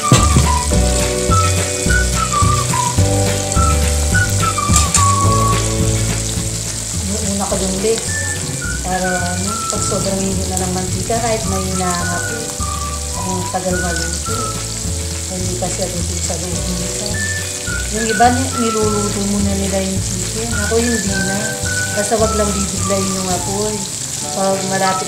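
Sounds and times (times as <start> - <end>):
background music: 0.0 - 25.0
chicken deep-frying in oil: 0.0 - 25.0.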